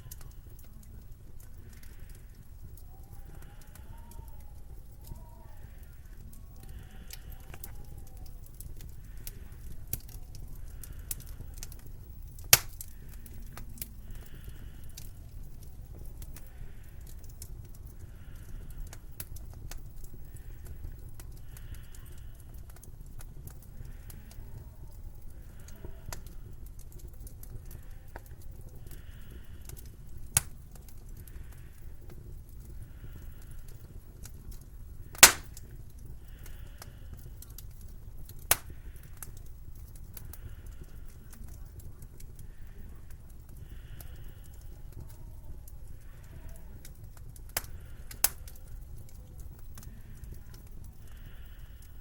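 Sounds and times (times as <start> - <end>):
soft hissing: 0.0 - 26.7
wood fire crackling: 0.0 - 52.0
loud sharp fire pops: 10.8 - 15.2, 35.0 - 36.0, 38.3 - 39.2, 47.6 - 48.5.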